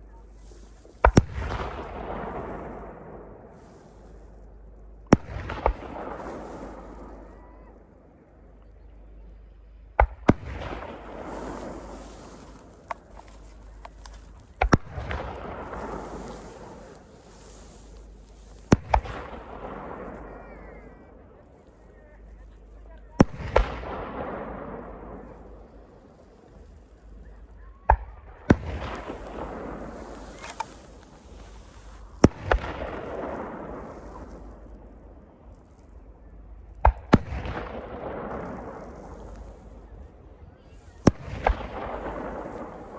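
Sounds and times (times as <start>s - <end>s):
fireworks bangs: 0.0s - 8.6s, 9.8s - 36.0s, 36.8s - 42.9s
rumbling echo: 0.0s - 21.2s
small firework pops: 0.4s - 7.4s, 9.9s - 20.9s, 22.3s - 36.0s, 36.6s - 42.9s
fireworks shells bursting: 10.0s - 20.0s, 28.7s - 34.4s.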